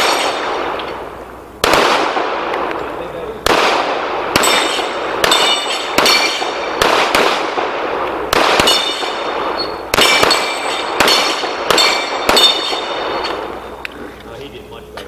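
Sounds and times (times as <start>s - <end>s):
pistol shots: 0.0s - 13.8s
steel plates ringing: 4.4s - 6.6s, 8.6s - 13.9s.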